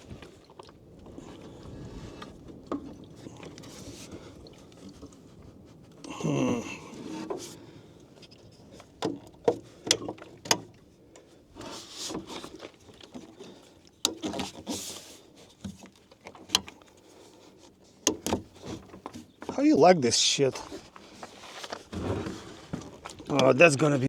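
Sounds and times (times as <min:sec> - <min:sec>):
clicks and knocks of handling: 0:08.4 - 0:17.0, 0:17.6 - 0:19.6.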